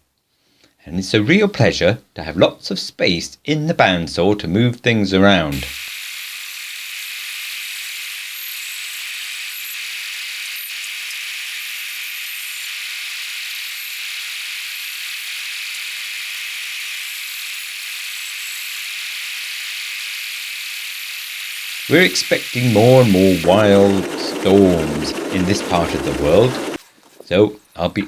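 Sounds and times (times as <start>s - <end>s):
bandsaw cutting wood: 5.5s - 26.8s.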